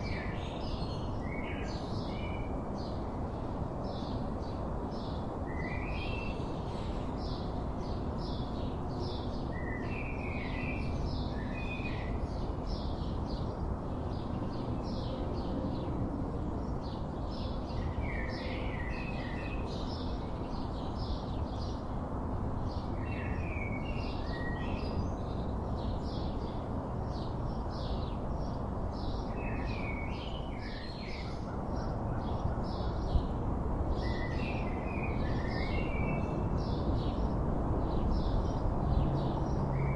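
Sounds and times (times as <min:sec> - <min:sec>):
birds singing: 0:00.0 - 0:16.0, 0:16.6 - 0:21.9, 0:22.6 - 0:33.3, 0:33.9 - 0:39.9.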